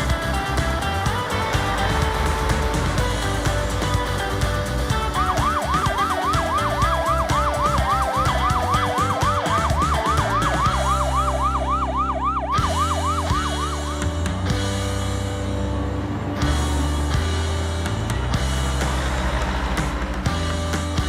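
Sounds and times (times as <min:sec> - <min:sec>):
background music with beat: 0:00.0 - 0:21.0
yelping siren: 0:04.9 - 0:14.3.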